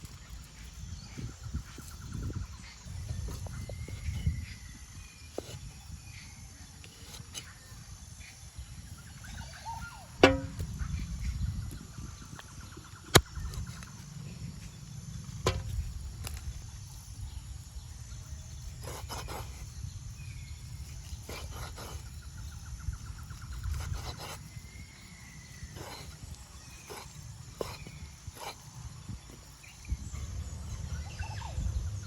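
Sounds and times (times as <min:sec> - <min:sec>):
faint bird calls: 0:01.9 - 0:14.1
knocks and clatters: 0:10.2 - 0:10.7.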